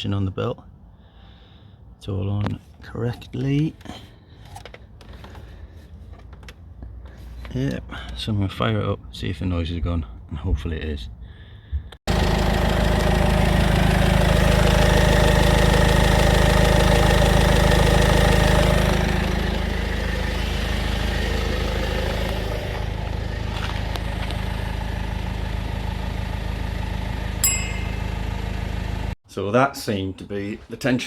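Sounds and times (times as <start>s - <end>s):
car engine idling: 12.1s - 29.2s.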